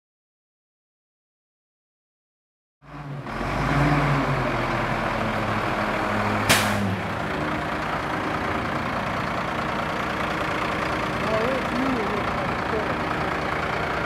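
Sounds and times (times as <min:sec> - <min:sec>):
garbage truck diesel engine running: 0:02.9 - 0:14.0.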